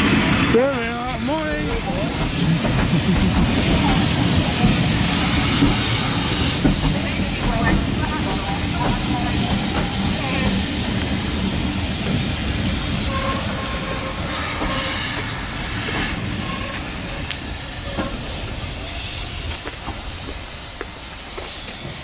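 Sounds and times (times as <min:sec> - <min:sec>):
train rumble: 0:00.0 - 0:22.0
train wheels clicking over rail joints: 0:00.7 - 0:12.3, 0:13.2 - 0:22.0
wheels squealing: 0:13.0 - 0:22.0.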